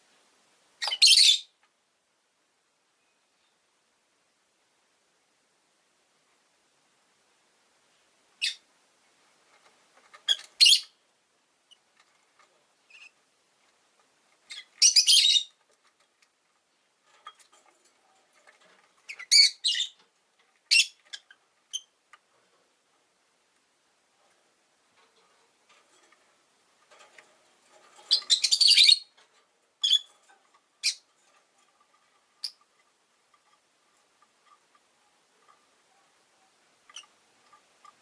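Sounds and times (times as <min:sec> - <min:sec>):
lovebirds chirping: 0:00.8 - 0:01.6, 0:08.4 - 0:08.7, 0:10.2 - 0:11.0, 0:12.8 - 0:13.2, 0:14.3 - 0:15.6, 0:18.9 - 0:20.0, 0:20.7 - 0:22.0, 0:27.9 - 0:29.2, 0:29.8 - 0:31.1, 0:32.2 - 0:32.7.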